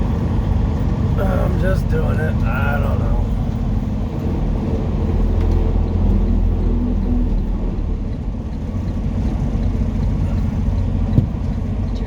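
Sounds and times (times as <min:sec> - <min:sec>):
truck diesel engine rumbling: 0:00.0 - 0:12.0.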